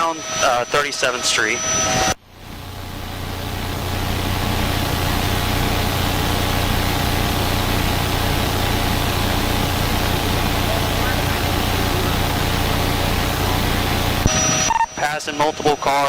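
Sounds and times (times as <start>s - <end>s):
helicopter engine and rotor drone: 0.0s - 16.0s.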